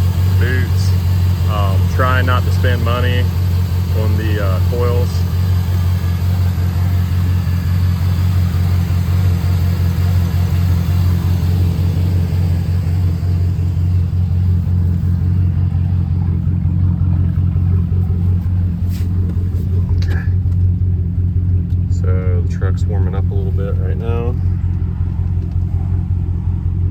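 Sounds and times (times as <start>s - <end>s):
truck engine idling: 0.0s - 26.9s.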